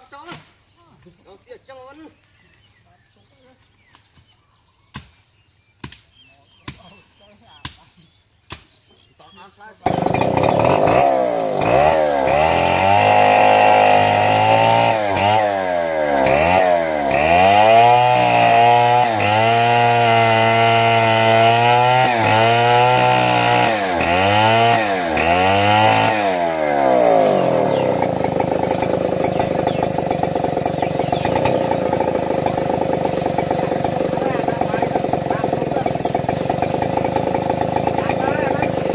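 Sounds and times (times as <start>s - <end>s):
chainsaw running at high revs: 9.8s - 38.9s.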